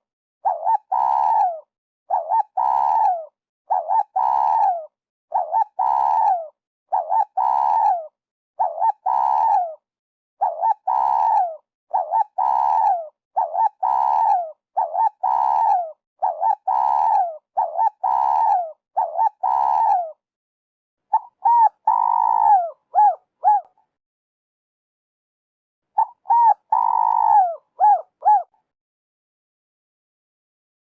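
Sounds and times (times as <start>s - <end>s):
dove cooing: 0.4s - 9.8s, 10.4s - 20.2s, 21.1s - 23.8s, 26.0s - 28.6s.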